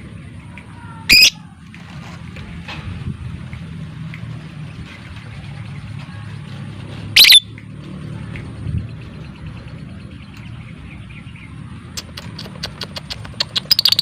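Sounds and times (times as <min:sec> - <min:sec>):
bird shrill call: 0:01.1 - 0:01.4, 0:07.2 - 0:07.5
faint bird chirping: 0:07.2 - 0:07.4.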